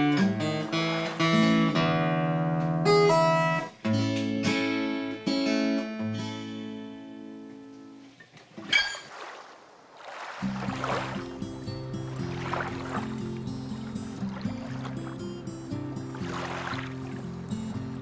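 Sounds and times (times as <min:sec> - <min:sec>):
acoustic guitar plucked notes: 0:00.0 - 0:08.0, 0:10.4 - 0:18.0.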